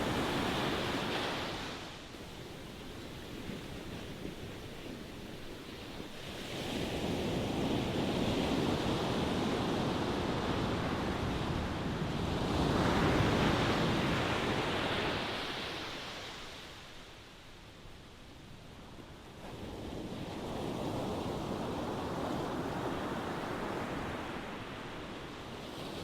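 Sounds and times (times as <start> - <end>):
ocean surf washing ashore: 0.0 - 17.5.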